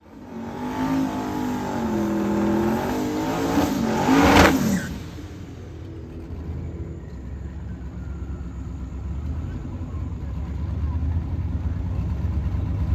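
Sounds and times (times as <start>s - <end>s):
drag racing engines at full throttle: 0.0s - 12.9s.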